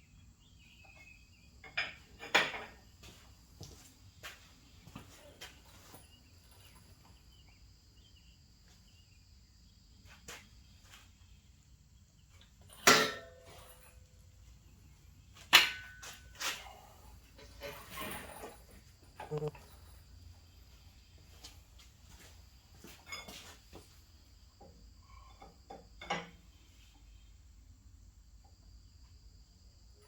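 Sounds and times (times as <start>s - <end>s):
tools clanking and clicking: 12.6s - 14.1s, 15.5s - 16.7s, 17.3s - 19.9s
sharp ringing metal clanks: 12.7s - 14.0s, 15.5s - 16.5s.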